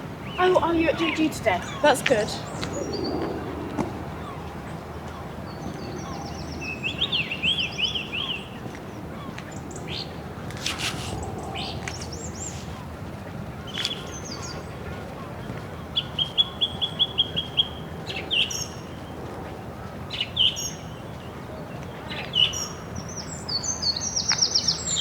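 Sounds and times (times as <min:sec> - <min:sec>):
birds chirping: 0:00.2 - 0:08.6, 0:09.2 - 0:13.0, 0:13.6 - 0:14.8.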